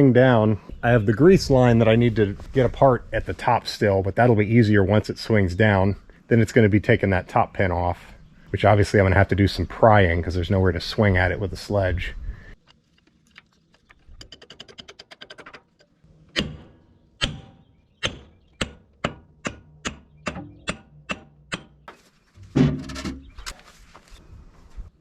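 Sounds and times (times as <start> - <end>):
hammer striking steel: 16.3 - 21.8
heavy metal clunk: 22.4 - 23.3.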